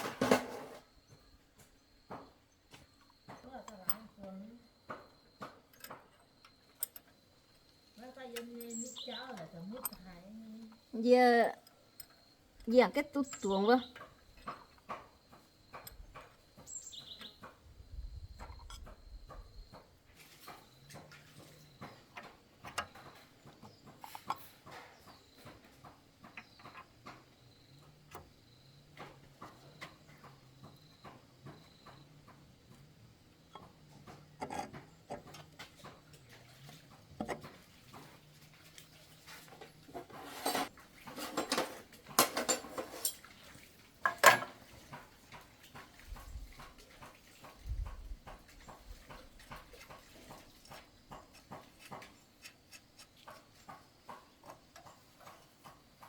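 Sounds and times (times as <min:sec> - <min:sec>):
metal tools clinking: 0:40.0 - 0:43.2.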